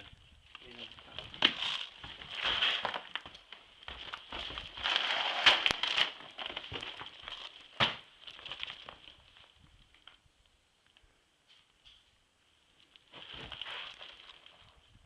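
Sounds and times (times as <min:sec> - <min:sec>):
rustling and crackling: 0:00.0 - 0:15.0.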